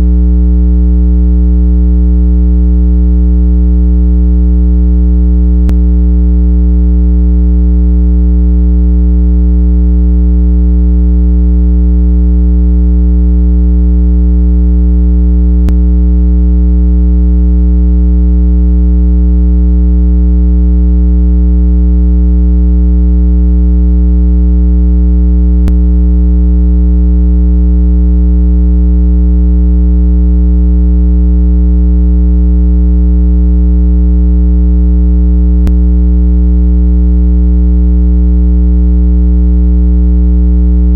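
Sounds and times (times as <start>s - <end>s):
low electronic tone: 0.0s - 18.4s, 24.1s - 29.4s, 35.4s - 36.3s.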